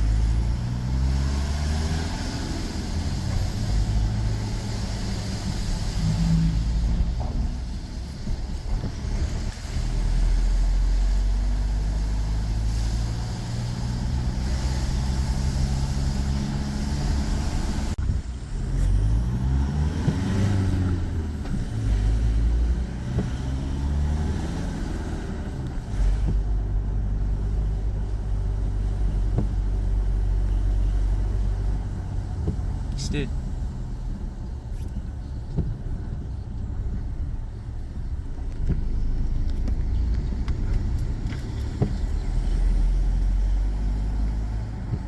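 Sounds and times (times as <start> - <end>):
vehicle engine revving: 0.0 - 7.8, 8.5 - 34.9
road noise: 0.0 - 45.0.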